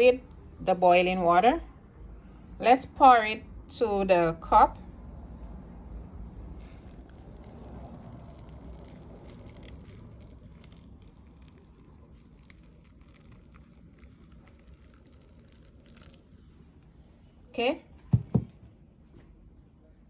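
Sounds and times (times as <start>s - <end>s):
water pouring into a cup: 6.4s - 17.1s
small clicks and crackles: 6.5s - 16.9s.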